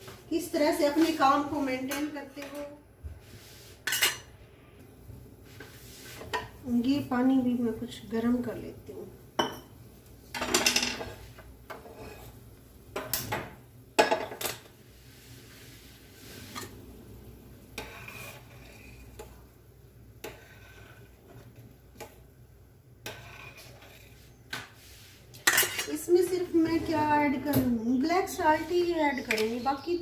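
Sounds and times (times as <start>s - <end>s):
pots and utensils clattering: 10.3s - 12.3s, 13.0s - 14.7s, 25.4s - 27.1s.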